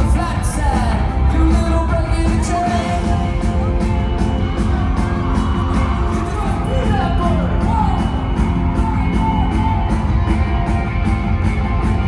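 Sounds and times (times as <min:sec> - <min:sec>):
drums: 0:00.0 - 0:12.0
electric guitar: 0:00.0 - 0:12.0.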